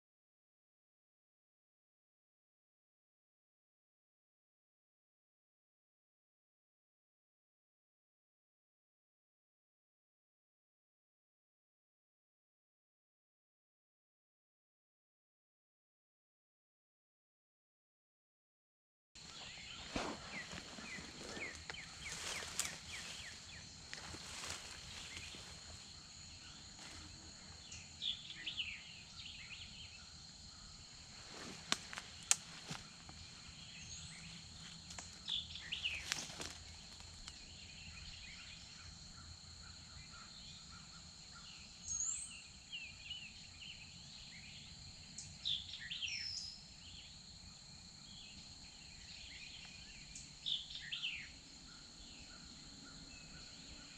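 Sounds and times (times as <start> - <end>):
songbird chirps: 19.2 - 53.9.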